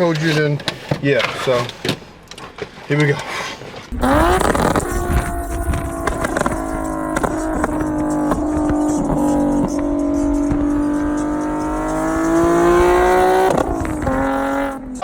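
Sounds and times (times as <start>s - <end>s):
car engine accelerating: 3.9s - 15.0s.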